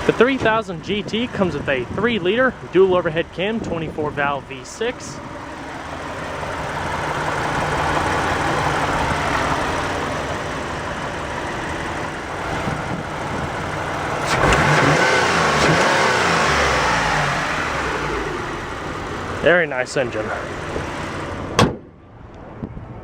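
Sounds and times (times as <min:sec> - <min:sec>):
car engine running and revving: 0:00.0 - 0:21.6
sharp knock: 0:21.6 - 0:21.9.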